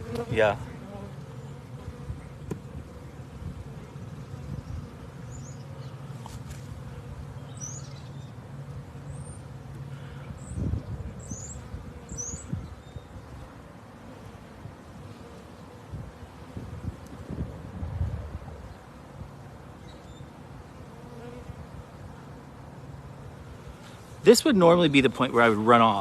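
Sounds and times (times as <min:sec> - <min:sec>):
bee swarm buzzing: 0:00.0 - 0:26.0
small bird chirping: 0:07.4 - 0:08.4, 0:10.4 - 0:13.2.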